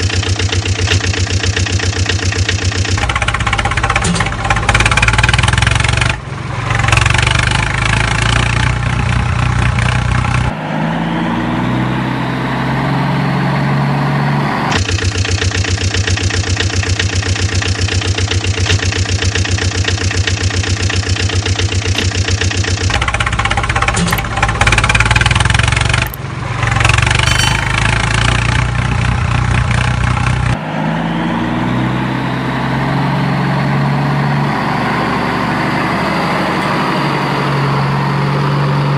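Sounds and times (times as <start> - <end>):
engine idling: 0.0 - 10.5, 14.7 - 30.6
engine revving through gears: 0.0 - 38.9.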